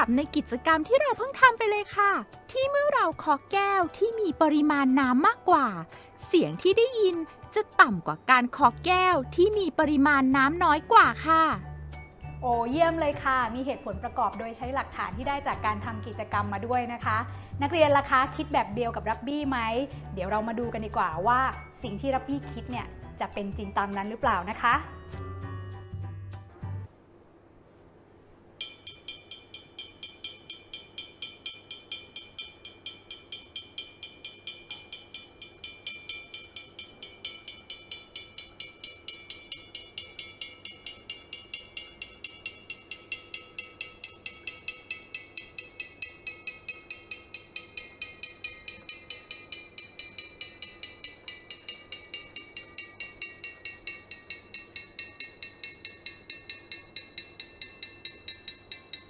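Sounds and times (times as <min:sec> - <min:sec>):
drinking glass tapped ringing: 0:28.6 - 0:59.0.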